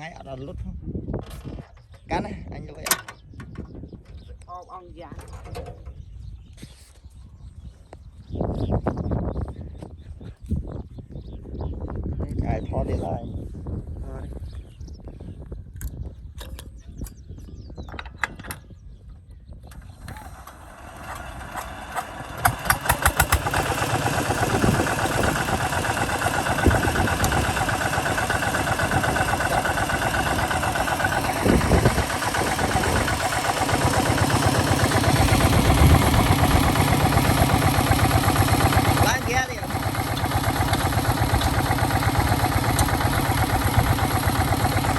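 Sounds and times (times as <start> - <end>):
diesel engine starting and running: 19.7 - 44.9.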